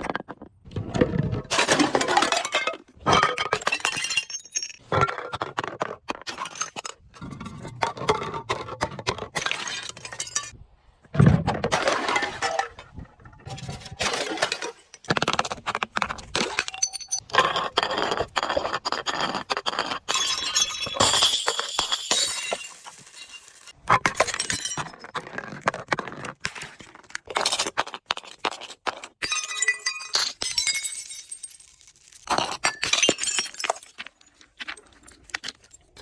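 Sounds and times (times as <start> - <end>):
glass crunching and breaking: 1.5 - 5.4, 20.1 - 25.2, 29.2 - 36.0.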